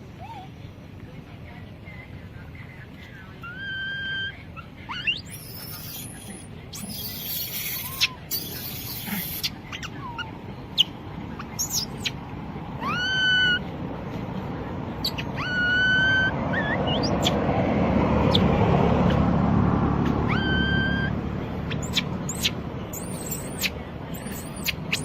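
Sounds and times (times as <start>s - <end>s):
baby monkey crying: 3.4s - 12.2s, 12.8s - 13.7s, 15.0s - 17.4s, 20.0s - 25.0s
monkey squeaks: 3.4s - 12.2s, 12.8s - 13.6s, 15.0s - 17.4s, 20.0s - 25.0s.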